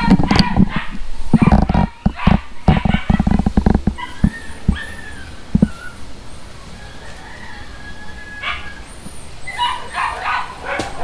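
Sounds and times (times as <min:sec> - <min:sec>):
heavy thuds: 0:00.0 - 0:04.9
dog whining and yipping: 0:00.0 - 0:11.0.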